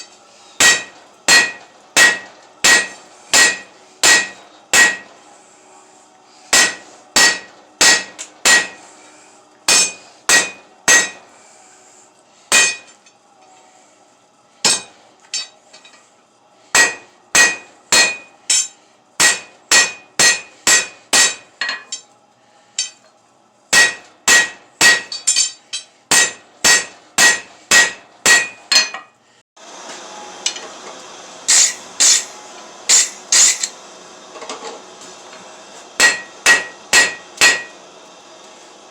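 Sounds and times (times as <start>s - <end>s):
hammer striking steel on anvil: 0.0s - 5.1s, 6.5s - 8.9s, 9.7s - 11.3s, 12.5s - 13.0s, 14.6s - 15.9s, 16.7s - 22.1s, 22.8s - 23.1s, 23.7s - 29.1s, 31.5s - 33.8s, 36.0s - 37.8s.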